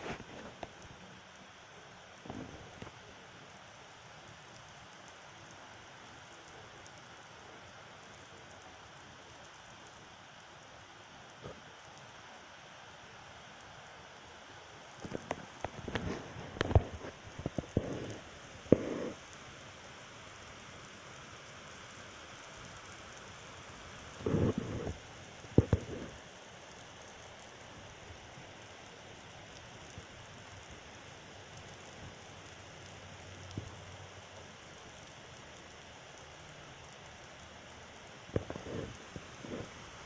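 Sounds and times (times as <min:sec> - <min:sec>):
heavy rain falling: 0:14.8 - 0:40.0.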